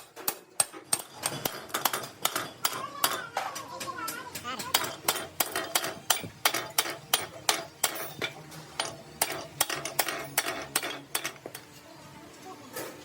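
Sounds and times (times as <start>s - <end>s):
metal-on-metal strikes: 4.7s - 11.6s.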